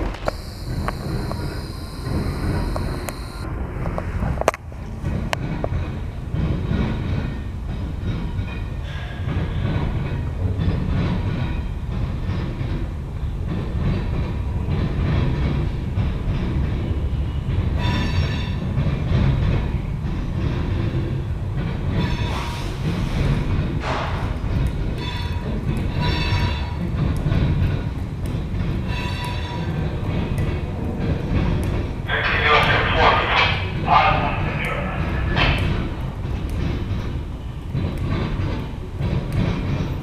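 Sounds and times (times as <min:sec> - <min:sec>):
freight train cars rumbling on rails: 0:00.0 - 0:40.0
high-pitched wheel squeals: 0:00.3 - 0:03.4.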